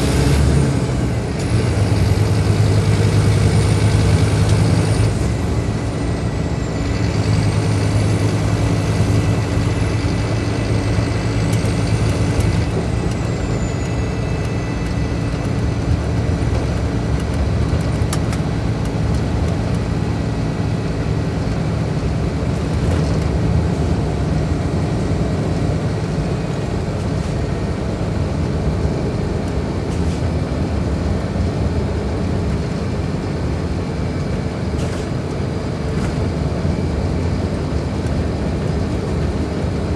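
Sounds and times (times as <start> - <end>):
high whine: 0.0 - 27.9
bus diesel engine running: 0.0 - 39.9.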